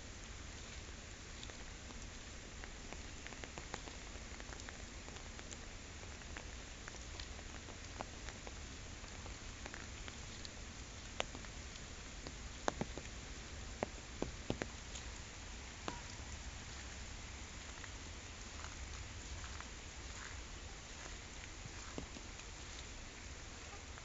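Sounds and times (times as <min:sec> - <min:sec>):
steady rain falling: 0:00.0 - 0:24.0
raindrop ticks: 0:00.1 - 0:24.0.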